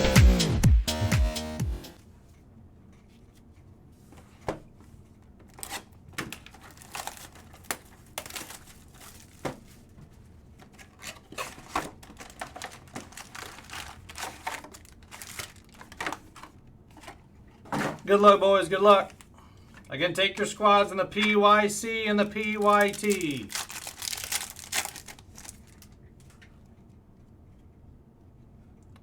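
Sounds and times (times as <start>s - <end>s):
foil wrappers tearing and crinkling: 5.5s - 9.7s, 10.8s - 16.4s, 22.3s - 26.0s.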